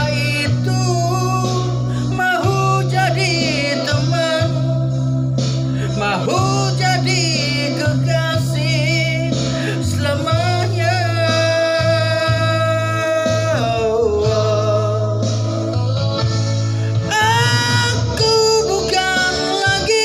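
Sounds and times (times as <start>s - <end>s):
bass: 0.0s - 20.0s
guitar: 0.0s - 20.0s
man singing with vibrato: 0.0s - 20.0s.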